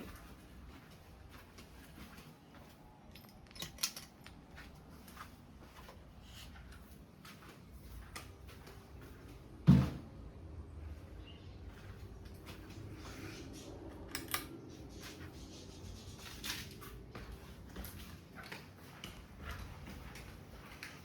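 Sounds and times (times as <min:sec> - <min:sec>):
loud dull thump: 0:09.6 - 0:10.1.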